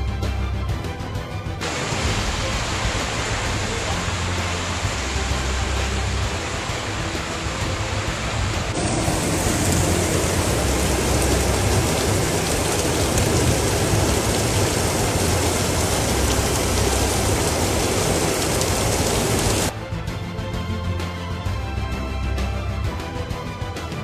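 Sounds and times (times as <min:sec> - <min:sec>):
heavy rain pouring: 0:01.6 - 0:19.7.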